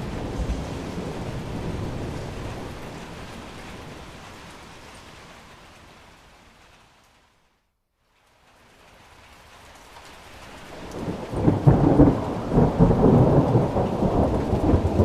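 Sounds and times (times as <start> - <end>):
low thunder rumbling: 0.0 - 4.8, 10.7 - 15.0
steady rain: 0.0 - 15.0.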